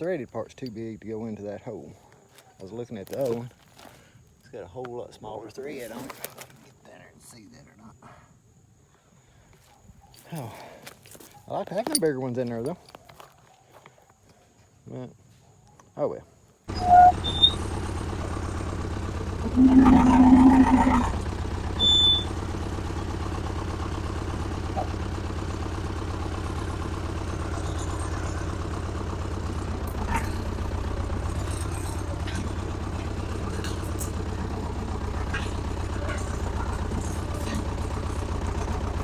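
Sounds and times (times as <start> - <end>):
brief high squeak: 16.7 - 17.7, 21.8 - 22.4
small tractor engine running: 16.7 - 39.0.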